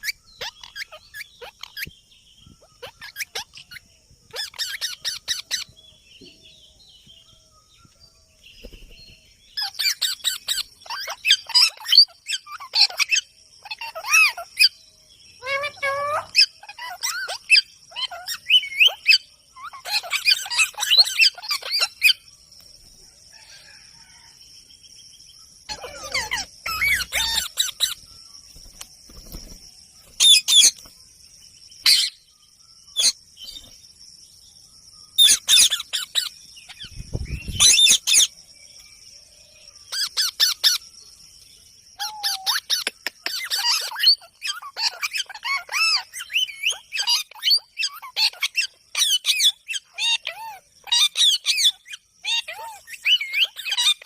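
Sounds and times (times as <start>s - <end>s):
parrot squawking: 15.4s - 22.1s, 25.7s - 28.0s, 42.0s - 54.0s.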